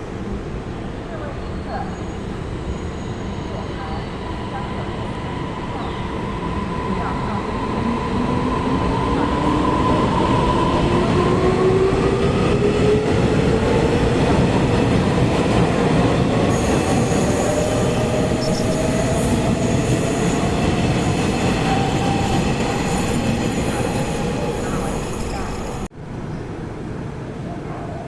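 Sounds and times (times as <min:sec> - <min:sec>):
train running with rising whine: 0:02.3 - 0:25.9
thin high-pitched squealing: 0:16.3 - 0:25.9.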